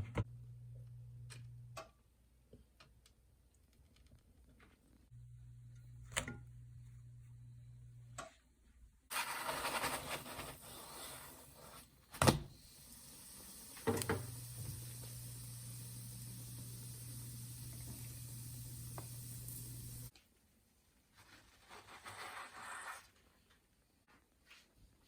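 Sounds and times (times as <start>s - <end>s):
rustling or scraping: 9.1s - 12.0s
steady low hum: 14.3s - 20.1s.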